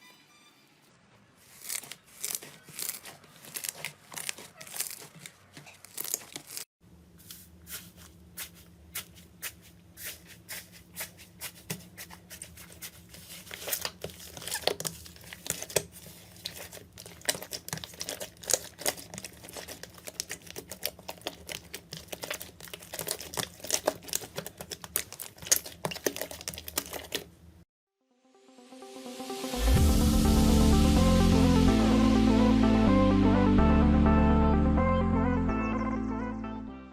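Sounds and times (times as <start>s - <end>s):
slime crackling and popping: 13.7s - 27.2s.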